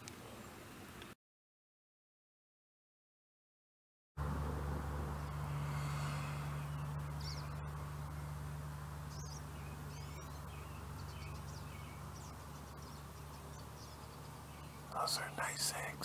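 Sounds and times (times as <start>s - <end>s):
steady low hum: 4.2s - 16.0s
high bird chirps: 5.2s - 8.4s, 9.0s - 15.9s.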